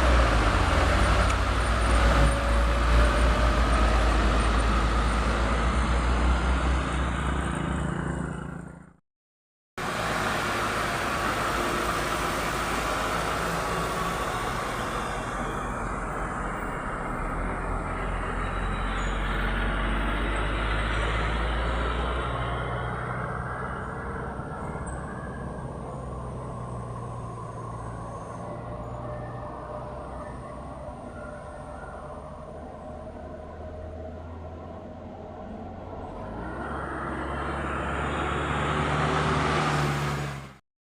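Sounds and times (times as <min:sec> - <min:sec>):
heavy truck engine drone: 0:00.0 - 0:09.0, 0:09.8 - 0:40.6
road noise hiss: 0:09.8 - 0:16.7.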